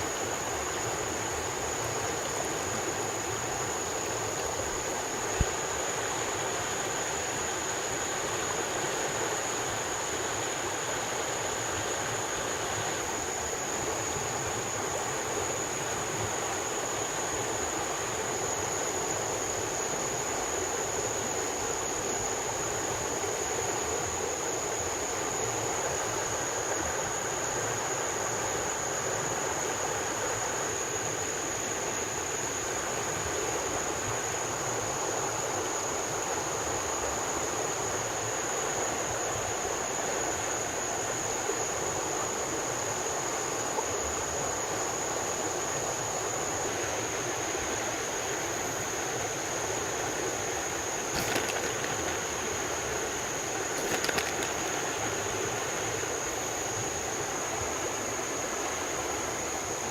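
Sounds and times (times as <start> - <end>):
high-pitched insect drone: 48.4 - 58.8
steady rushing noise: 53.7 - 54.8.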